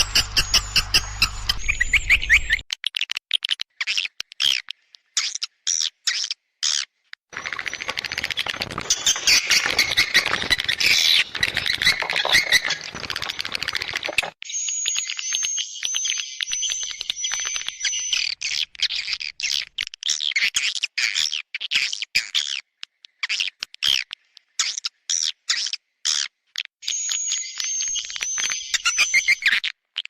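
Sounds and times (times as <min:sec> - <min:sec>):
swiftlets twittering: 0:07.3 - 0:14.4.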